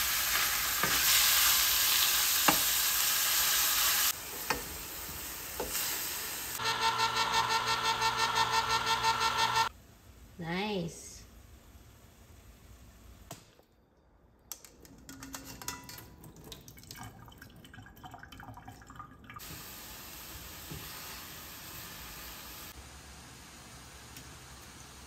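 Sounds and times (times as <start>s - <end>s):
vegetables sizzling in a pan: 0.0s - 7.8s, 19.4s - 25.0s
pan and utensils clattering: 14.7s - 16.4s.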